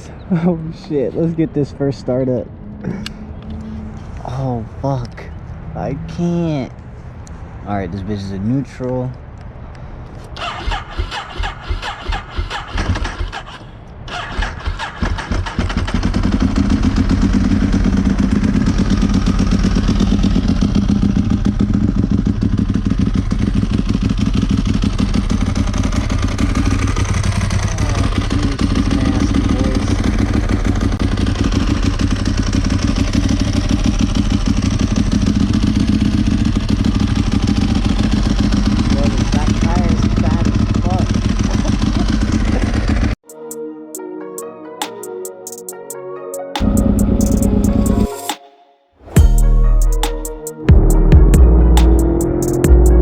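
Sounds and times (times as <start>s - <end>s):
motorcycle engine idling: 15.4s - 43.2s, 46.6s - 48.0s.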